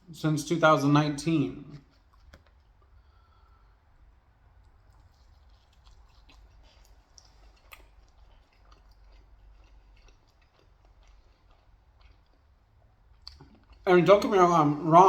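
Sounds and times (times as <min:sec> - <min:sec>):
soft crunch: 0:01.7 - 0:03.7, 0:04.6 - 0:14.3
chewing pizza: 0:01.7 - 0:15.0.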